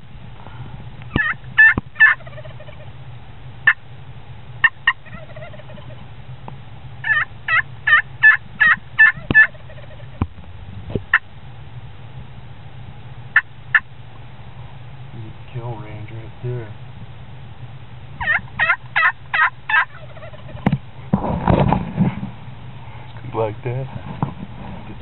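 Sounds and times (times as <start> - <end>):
low hum: 0.0 - 25.0
turkey yelps: 1.1 - 2.9, 4.6 - 6.0, 7.0 - 10.2, 13.3 - 13.9, 18.2 - 20.7.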